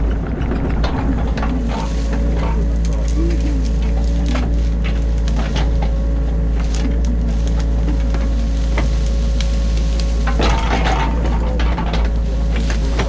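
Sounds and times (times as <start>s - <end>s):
knocks and clicks: 0.0s - 6.1s
diesel engine drone: 0.0s - 13.0s
scraping rattle: 0.0s - 13.0s.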